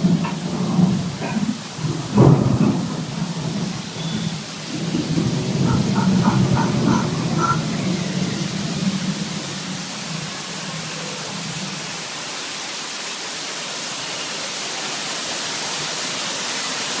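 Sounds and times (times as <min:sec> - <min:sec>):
low thunder rumble: 0:00.0 - 0:11.8
steady rain hiss: 0:00.0 - 0:17.0.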